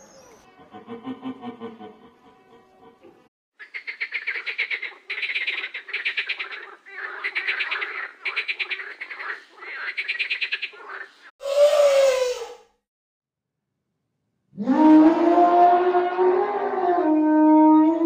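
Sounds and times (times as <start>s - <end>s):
rapid rattling croak calls: 3.6s - 11.3s
animal call with falling pitch: 11.4s - 12.7s, 14.6s - 18.0s.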